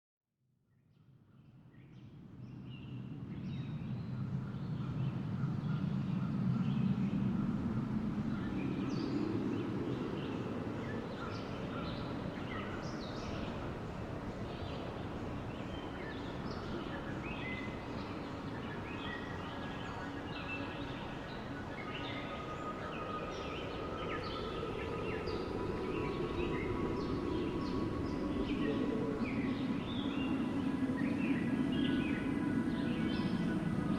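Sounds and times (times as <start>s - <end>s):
wind blowing: 22.4s - 33.9s.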